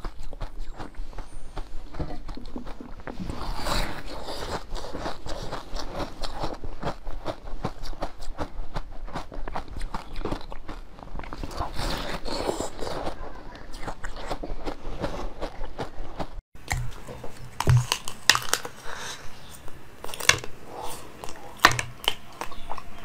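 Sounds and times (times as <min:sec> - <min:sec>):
person chewing soft food: 0:00.0 - 0:23.0.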